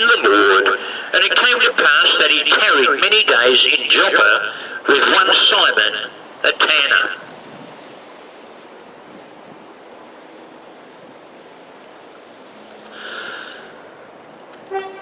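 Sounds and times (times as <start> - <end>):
distant traffic wash: 0.0 - 15.0.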